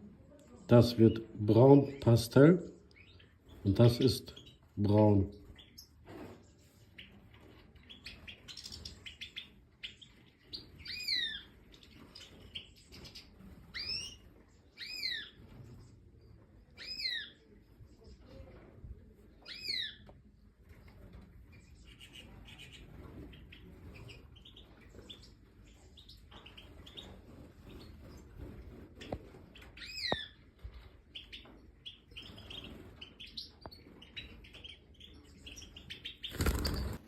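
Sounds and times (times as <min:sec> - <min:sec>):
finches chirping: 0:06.9 - 0:15.4, 0:31.1 - 0:37.0.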